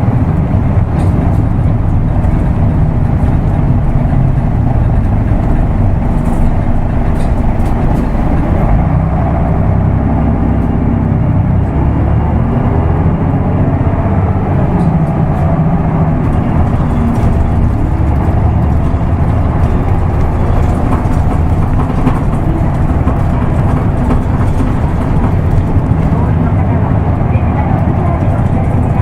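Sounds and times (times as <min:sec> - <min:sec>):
bus diesel engine accelerating: 0:00.0 - 0:29.0.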